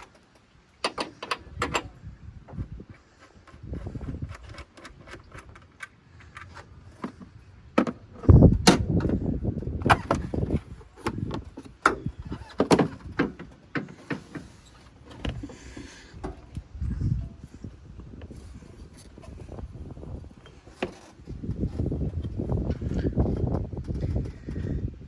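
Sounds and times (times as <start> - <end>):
sharp clicks and clattering knocks: 0.0 - 1.9, 2.5 - 16.7.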